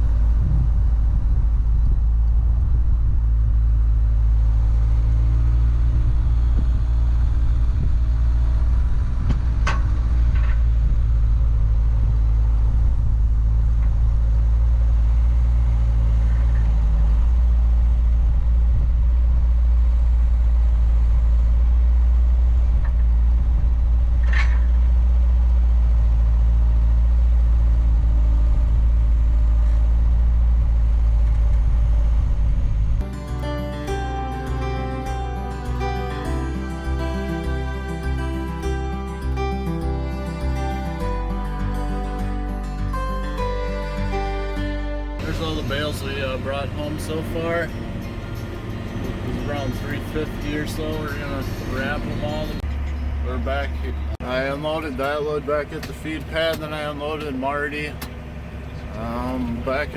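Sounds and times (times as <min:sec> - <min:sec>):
tractor engine rumbling: 0:00.0 - 0:33.1, 0:45.2 - 0:59.9.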